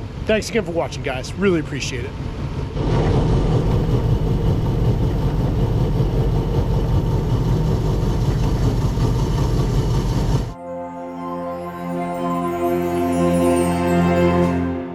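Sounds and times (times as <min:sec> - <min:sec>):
heavy vehicle engine rumbling: 0:00.0 - 0:10.6
music: 0:10.6 - 0:14.9.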